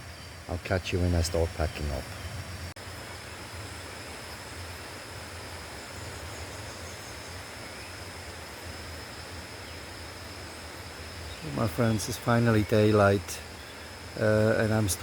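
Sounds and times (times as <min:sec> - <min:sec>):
background hiss: 0:00.0 - 0:15.0
crickets trilling: 0:00.0 - 0:15.0.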